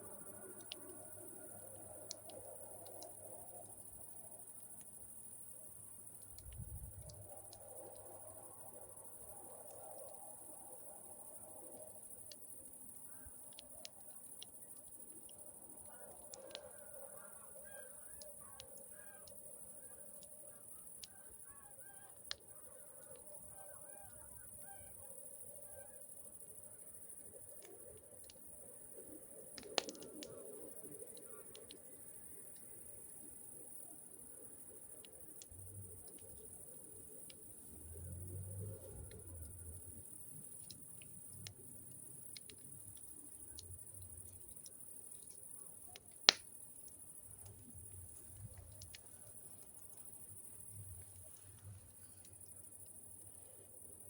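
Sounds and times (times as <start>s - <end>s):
crickets trilling: 0.0s - 54.0s
campfire popping: 0.1s - 8.2s, 27.1s - 33.7s, 38.7s - 53.3s.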